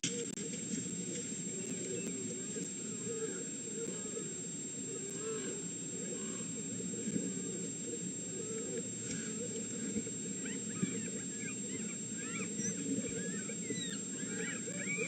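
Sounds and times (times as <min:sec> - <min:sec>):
wolf pups squeaking and whining: 0:10.4 - 0:15.0.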